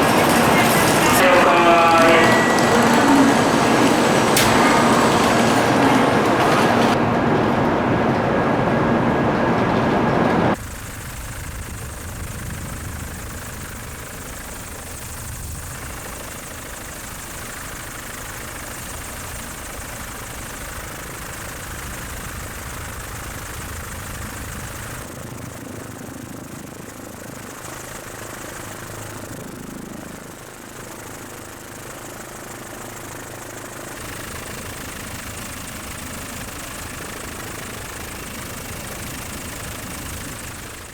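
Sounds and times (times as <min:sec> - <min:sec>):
loud noise cutting off: 0:00.0 - 0:10.6
helicopter engine and rotor: 0:00.0 - 0:40.9.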